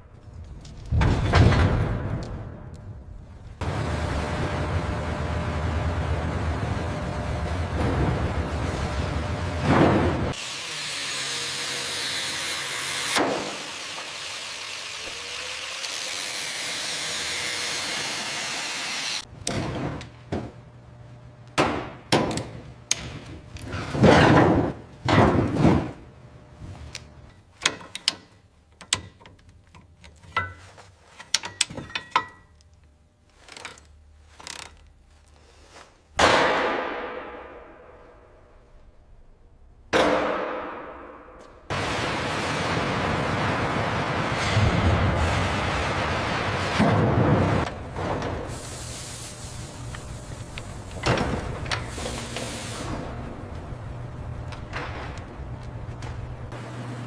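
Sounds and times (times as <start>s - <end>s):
sharp knocks and clanks: 3.6s - 10.4s, 39.9s - 48.7s, 49.7s - 56.6s
steady hissing: 48.5s - 53.4s.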